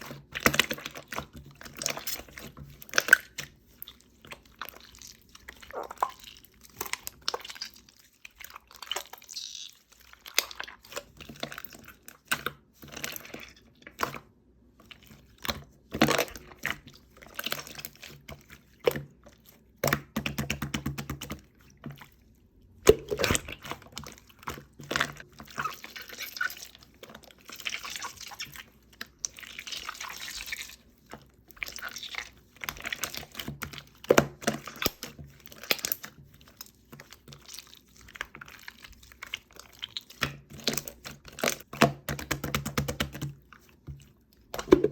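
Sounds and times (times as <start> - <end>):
slime squished with wet pops: 31.6 - 44.9.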